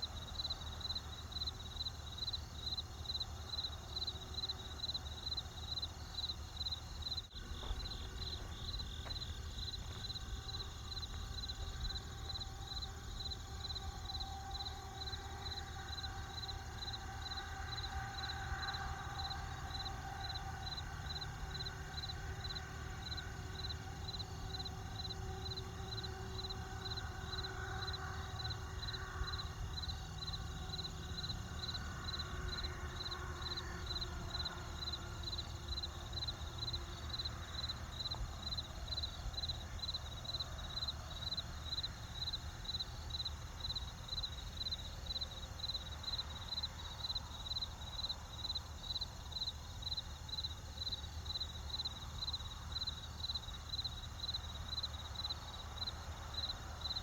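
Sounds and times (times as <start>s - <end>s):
campfire: 0.0s - 37.0s
crickets chirping: 0.0s - 57.0s.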